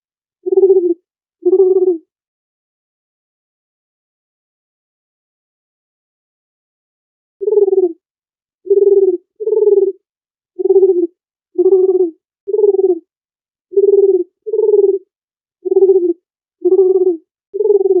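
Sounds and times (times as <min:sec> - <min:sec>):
dove cooing: 0:00.4 - 0:02.0, 0:07.4 - 0:08.0, 0:08.7 - 0:10.0, 0:10.6 - 0:13.0, 0:13.7 - 0:18.0.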